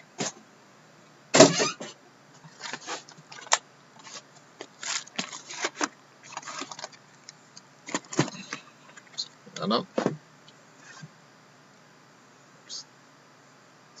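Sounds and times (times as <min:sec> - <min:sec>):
rustling: 0:02.4 - 0:07.0.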